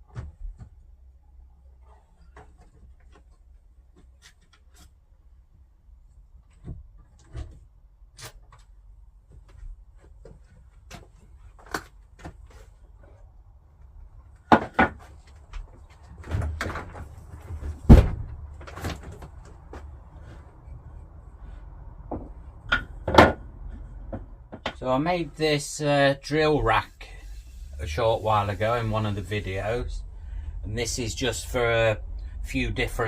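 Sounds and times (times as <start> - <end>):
loud knocks: 17.6 - 18.5.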